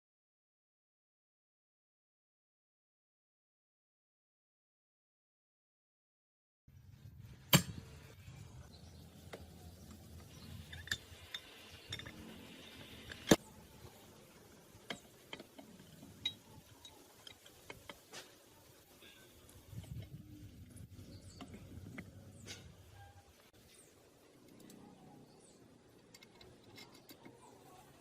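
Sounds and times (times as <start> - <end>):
metal parts clinking: 10.3 - 13.4.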